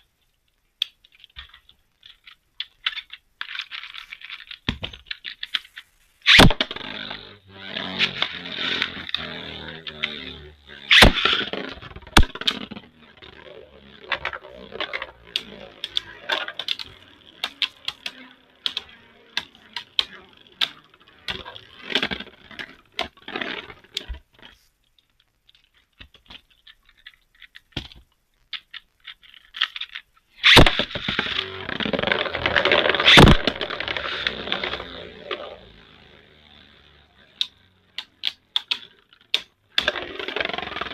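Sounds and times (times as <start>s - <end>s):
spinning tops scraping and clashing: 2.8s - 24.1s, 30.4s - 40.9s
spinning tops clattering: 3.7s - 23.9s, 30.4s - 40.9s.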